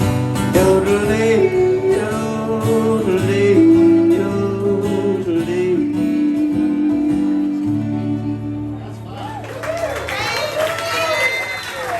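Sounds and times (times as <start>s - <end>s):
country music with guitar: 0.0s - 9.4s.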